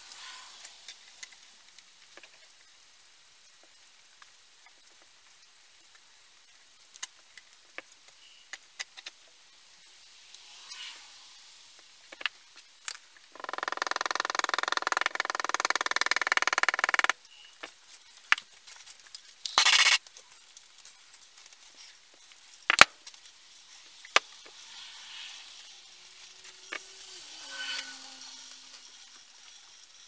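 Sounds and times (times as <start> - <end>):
small power tool buzzing: 26.5 - 29.1.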